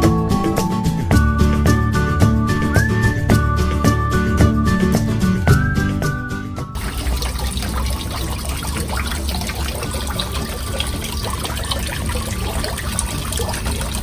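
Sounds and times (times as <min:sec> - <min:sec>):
water trickling and splashing: 0:06.8 - 0:14.0.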